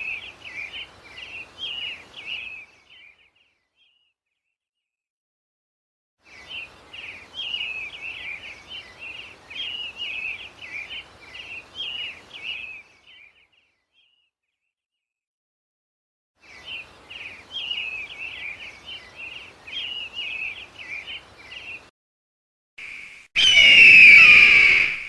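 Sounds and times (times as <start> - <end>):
bird chirping rapidly: 23.4 - 25.0.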